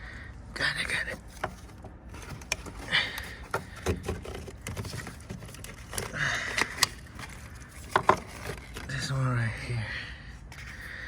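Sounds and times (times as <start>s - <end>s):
plastic fittings and tools rattling: 1.1s - 9.1s
rustling: 1.1s - 9.4s.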